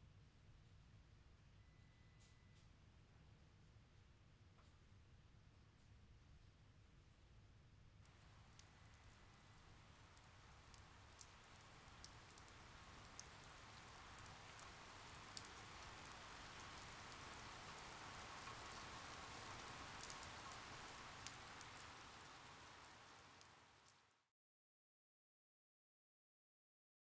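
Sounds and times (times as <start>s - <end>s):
light rain hiss: 7.9s - 24.3s
small drip ticks: 8.1s - 24.1s.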